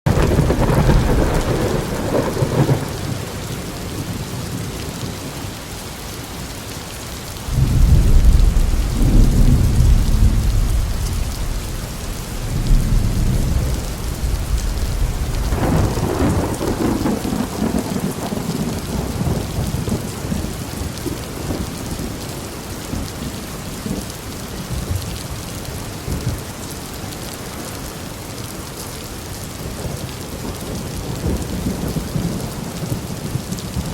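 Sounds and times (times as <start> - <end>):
rolling thunder: 0.1 - 5.1, 7.5 - 21.8
steady rain: 0.1 - 33.9.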